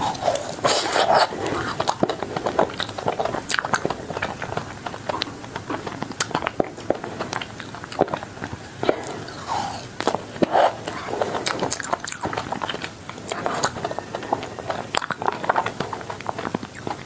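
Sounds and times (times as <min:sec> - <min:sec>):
biting frozen ice cream bar: 0:00.0 - 0:17.0
chewing crunchy frozen shell: 0:00.0 - 0:17.0.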